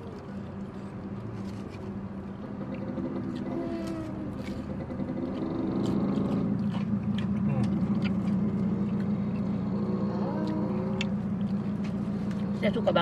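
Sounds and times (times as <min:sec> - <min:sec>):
car engine hum inside cabin: 0:00.0 - 0:13.0
people biting crisp snacks: 0:03.2 - 0:09.5.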